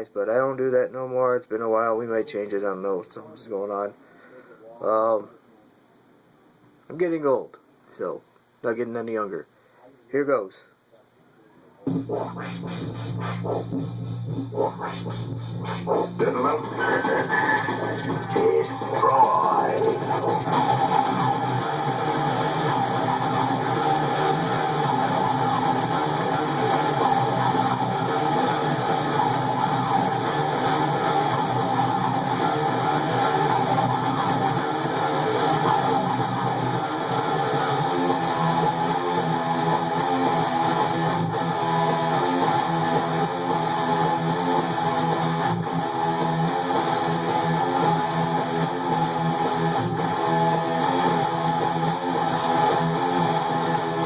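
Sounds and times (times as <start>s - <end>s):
heavy metal electric guitar: 11.9s - 54.0s.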